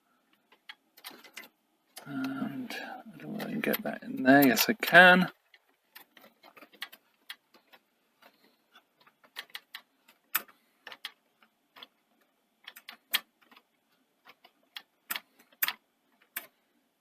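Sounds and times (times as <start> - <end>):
allen key clicking on screws: 5.5 - 12.0.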